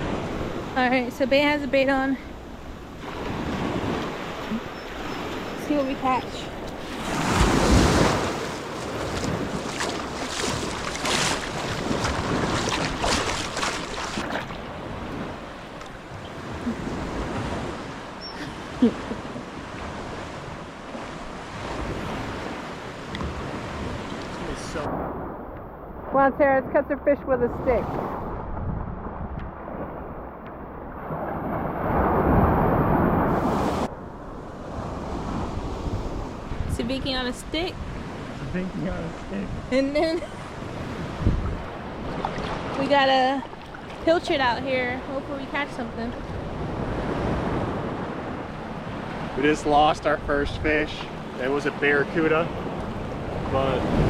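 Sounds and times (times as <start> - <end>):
sea waves splashing on shore: 0.0 - 26.2, 27.6 - 54.0
wind buffeting microphone: 2.4 - 54.0
wind blowing on microphone: 27.4 - 43.4.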